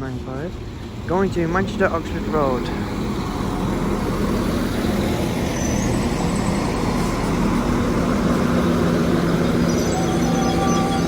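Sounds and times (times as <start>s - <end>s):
diesel trains rumbling: 0.0s - 11.0s
faint high-pitched squeals: 3.2s - 11.0s.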